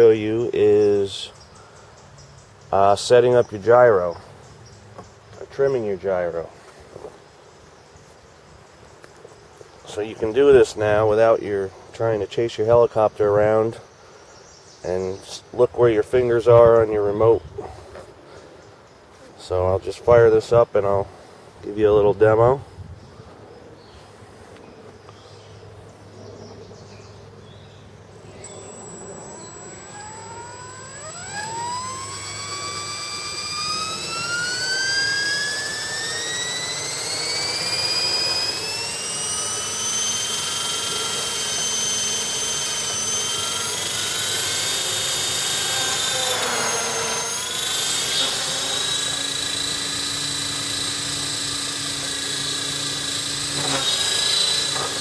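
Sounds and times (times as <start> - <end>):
rc helicopter motor whine: 28.1 - 55.0.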